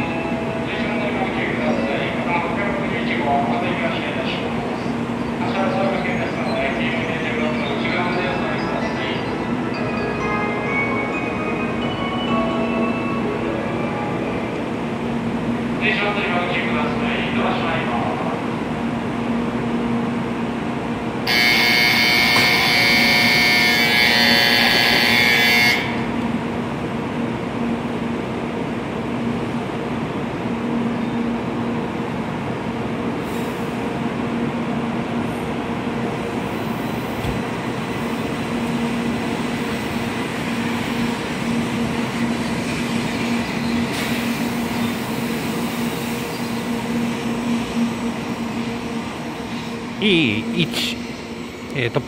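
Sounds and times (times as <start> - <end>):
train pulling out humming: 0.0 - 52.0
electronic platform departure signal: 21.3 - 26.2.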